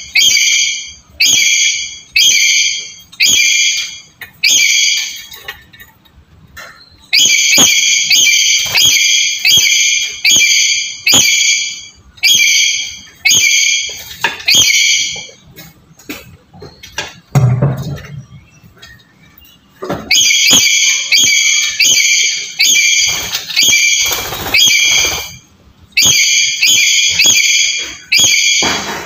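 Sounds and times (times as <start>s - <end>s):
parrot shrill calls: 0.0s - 5.3s, 7.1s - 15.3s, 20.1s - 25.4s, 26.0s - 28.7s.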